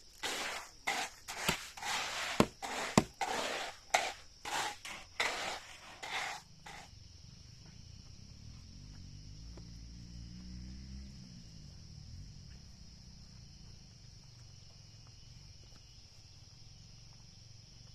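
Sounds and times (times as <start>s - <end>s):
scraping strokes on wood: 0.0s - 6.9s.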